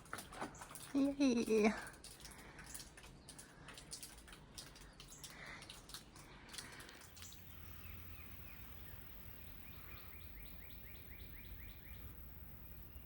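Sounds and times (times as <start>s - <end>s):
faint low outdoor rumble: 0.0s - 13.0s
songbird whistling notes: 7.3s - 12.1s.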